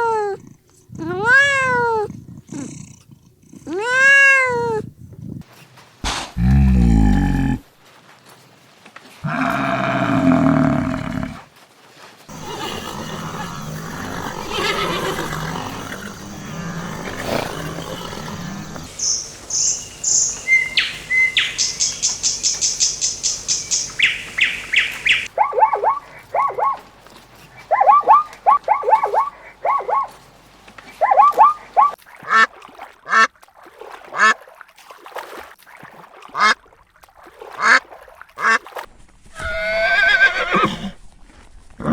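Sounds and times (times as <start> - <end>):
animal calls: 12.3 - 26.9, 27.5 - 30.2, 30.9 - 32.4
high-pitched bird chirping: 18.9 - 26.8.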